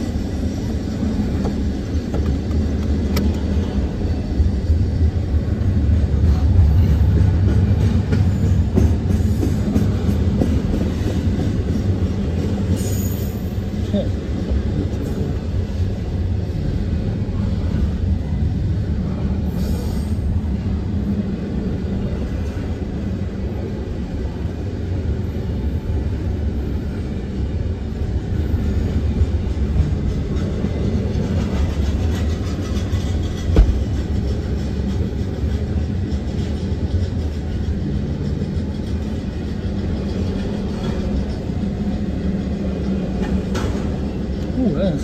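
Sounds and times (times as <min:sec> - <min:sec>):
train wheels rumbling on rail: 0:00.0 - 0:45.0
sharp knock: 0:33.6 - 0:34.0.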